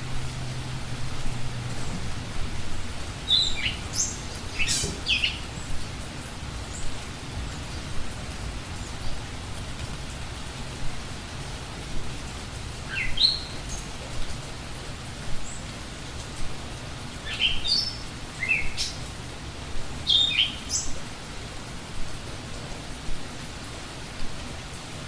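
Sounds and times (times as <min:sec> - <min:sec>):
steady background hiss: 0:00.0 - 0:25.0
bird singing: 0:03.2 - 0:05.8, 0:12.9 - 0:14.0, 0:17.2 - 0:19.1, 0:20.0 - 0:21.0.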